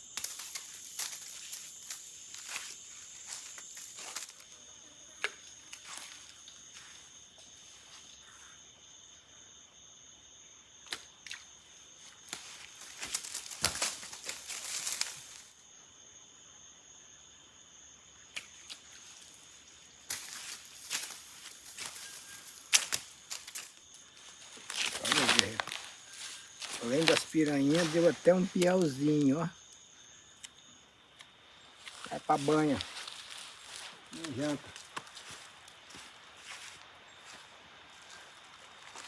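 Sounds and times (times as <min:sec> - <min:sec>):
insects chirring: 0:00.0 - 0:39.0
rustling and scraping: 0:20.1 - 0:29.1.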